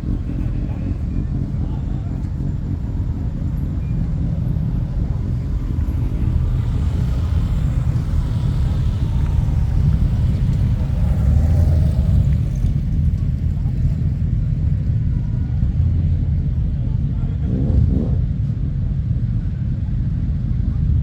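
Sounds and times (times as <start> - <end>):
motorcycle engines rumbling: 0.0 - 21.0.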